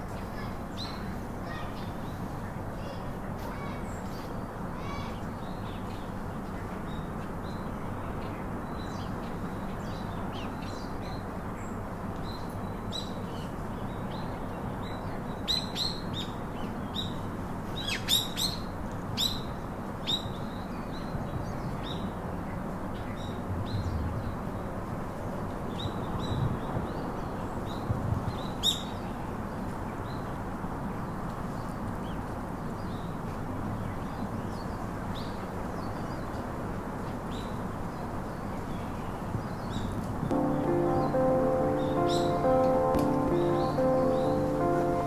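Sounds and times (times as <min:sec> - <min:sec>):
steady background hiss: 0:40.3 - 0:45.0.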